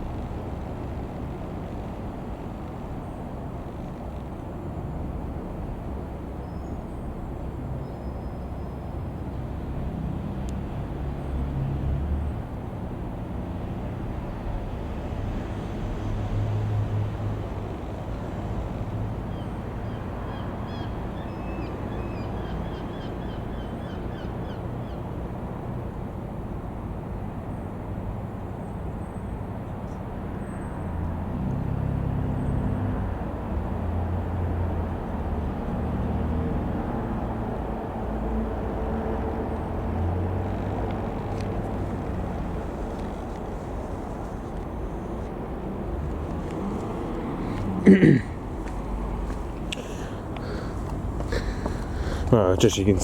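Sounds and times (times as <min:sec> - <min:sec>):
low wind noise: 0:00.0 - 0:07.8, 0:36.2 - 0:53.0
light aircraft engine passing: 0:35.1 - 0:53.0.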